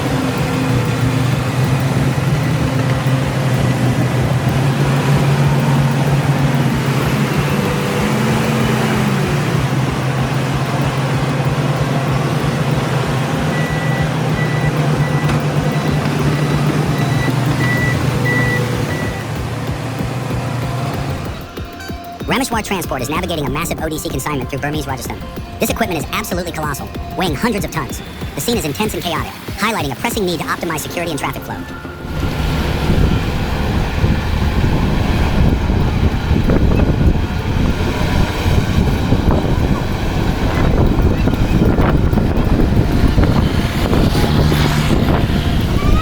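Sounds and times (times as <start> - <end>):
diesel engines running: 0.0 - 46.0
back-up alarm beeping: 10.2 - 19.8, 21.4 - 32.3.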